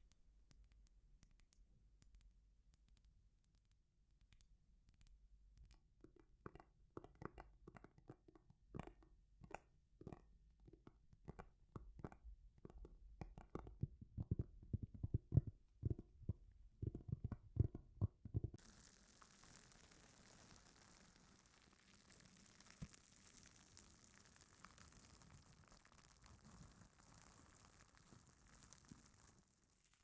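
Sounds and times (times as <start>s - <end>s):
soft taps and crackles: 0.0s - 30.0s
steady hiss: 18.6s - 24.8s.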